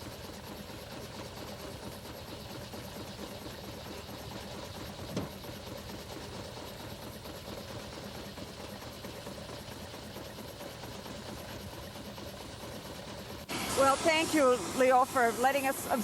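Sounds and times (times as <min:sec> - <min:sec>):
steam engine and sawmill clatter: 0:00.0 - 0:16.0.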